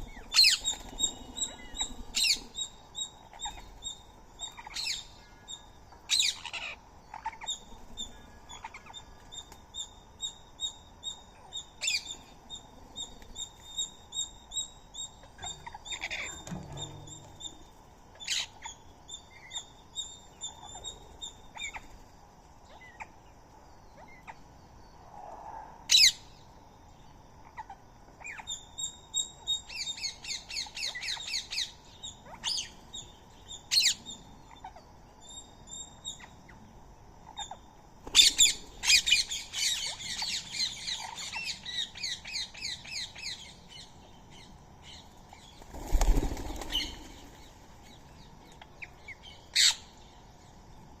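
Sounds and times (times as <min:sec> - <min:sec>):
birds chattering: 0:00.0 - 0:22.1, 0:27.4 - 0:50.6
wing flaps: 0:45.6 - 0:47.2.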